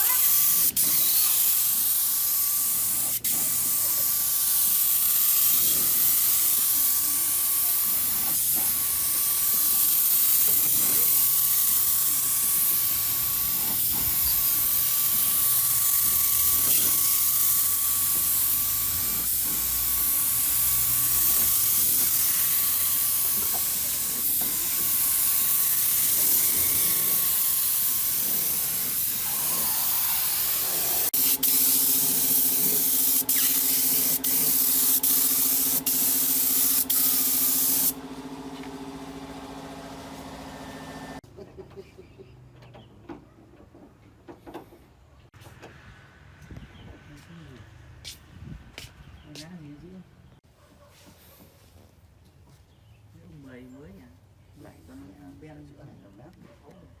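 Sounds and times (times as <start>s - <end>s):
high-pressure spray hissing: 0.0s - 38.0s.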